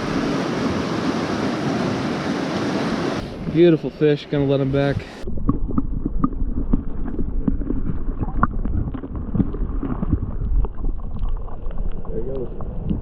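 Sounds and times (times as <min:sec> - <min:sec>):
low rumble: 0:05.0 - 0:13.0
water sloshing and splashing: 0:05.0 - 0:13.0.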